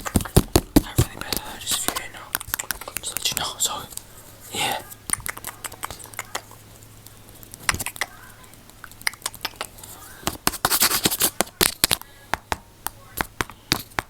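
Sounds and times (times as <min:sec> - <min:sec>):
sharp clicks and taps: 0:00.0 - 0:04.1
rapid crackly clicks: 0:00.0 - 0:14.0.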